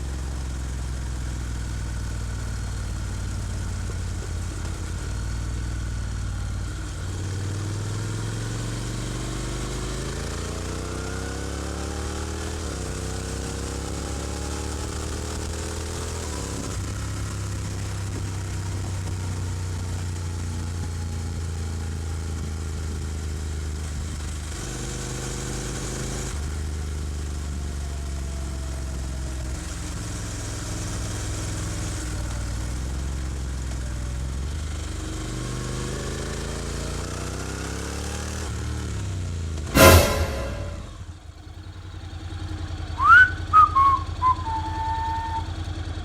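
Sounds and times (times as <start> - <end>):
motorcycle engine running: 0.0 - 24.5.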